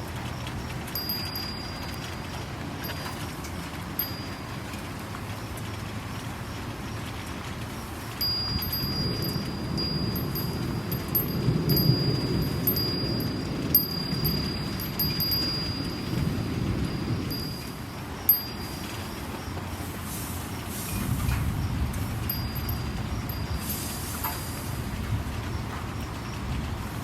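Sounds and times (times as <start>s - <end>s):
steady rain hiss: 0.0s - 27.0s
wind chime ringing: 0.9s - 3.3s, 3.9s - 4.6s, 8.2s - 19.5s, 22.2s - 24.4s
low thunder rumble: 7.6s - 27.0s.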